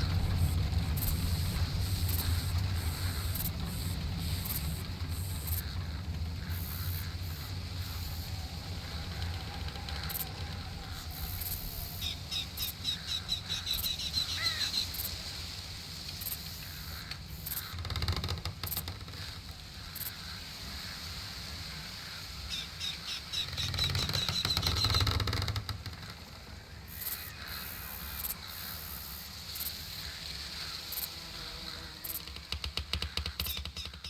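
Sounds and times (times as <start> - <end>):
steady low rumble: 0.0 - 14.9
birds calling: 0.0 - 34.0
constant high hum: 0.0 - 34.0
quick clicks: 32.1 - 34.0.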